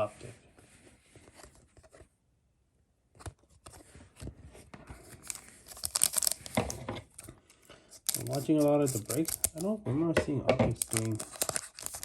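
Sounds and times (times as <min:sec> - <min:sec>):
trading cards rustling: 0:04.9 - 0:09.8, 0:10.7 - 0:12.0.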